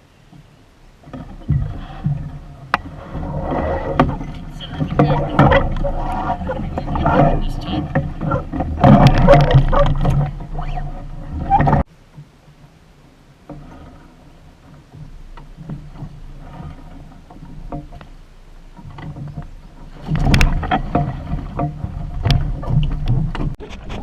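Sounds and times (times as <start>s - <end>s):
water splashing against hull: 0.0s - 24.0s
water lapping with clicks: 0.3s - 12.8s, 13.4s - 24.0s
wind on microphone: 18.8s - 24.0s.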